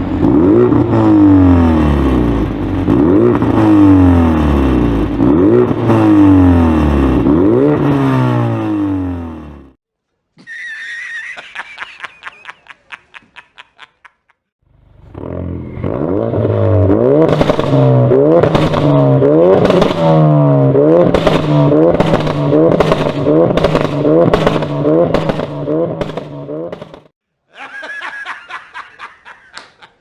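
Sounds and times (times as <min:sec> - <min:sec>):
sports car engine revving: 0:00.0 - 0:09.8, 0:14.7 - 0:27.1.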